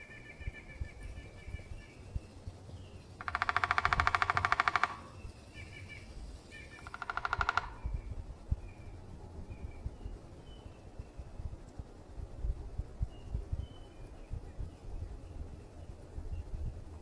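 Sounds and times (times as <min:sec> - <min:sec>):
woodpecker drumming on wood: 0:03.1 - 0:05.7, 0:06.7 - 0:08.1.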